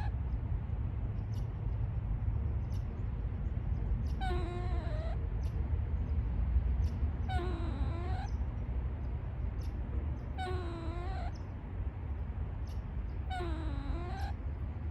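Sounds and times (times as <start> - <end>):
steady low rumble: 0.0 - 14.9
squirrel whining call: 4.1 - 5.2, 7.2 - 8.4, 10.3 - 11.4, 13.2 - 14.4.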